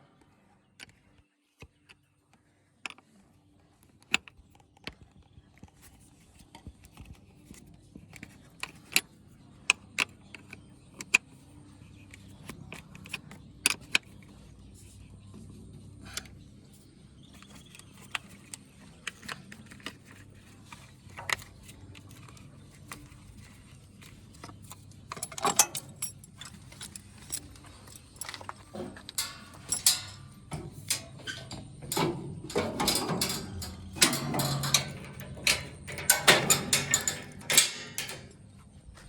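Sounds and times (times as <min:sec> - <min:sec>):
low steady hum: 0:06.3 - 0:39.0
metallic clicking and rattling: 0:16.0 - 0:38.6.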